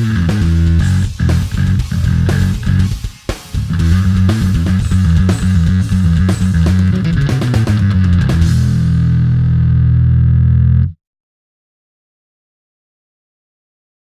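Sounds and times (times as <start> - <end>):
drum kit: 0.0 - 9.9
electric bass riff: 0.0 - 11.0.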